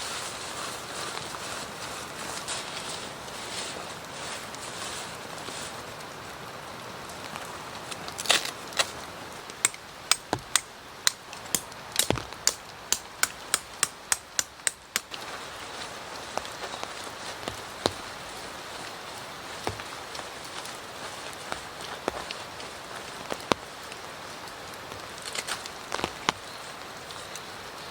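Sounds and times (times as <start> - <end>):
steady rain falling: 0.0 - 27.9
sharp knocks: 9.6 - 15.1.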